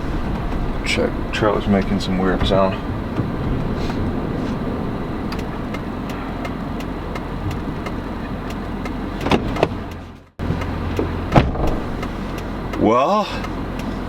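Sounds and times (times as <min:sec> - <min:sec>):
loud knocks: 0:00.0 - 0:08.3, 0:11.3 - 0:12.0
rhythmic clicking from trailer wheel: 0:00.0 - 0:14.0
vehicle towing a trailer: 0:00.0 - 0:14.0.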